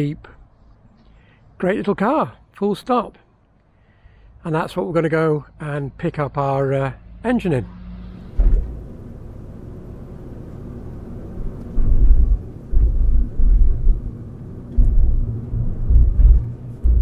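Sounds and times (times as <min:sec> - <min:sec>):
wind buffeting microphone: 0:08.3 - 0:17.0.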